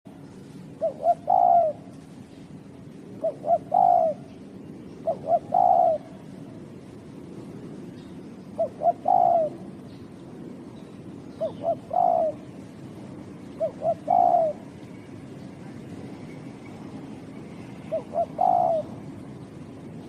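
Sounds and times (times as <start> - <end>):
dove cooing: 0.7 - 1.9, 3.0 - 6.3, 8.4 - 9.7, 11.3 - 12.6, 13.4 - 14.8, 17.5 - 19.1.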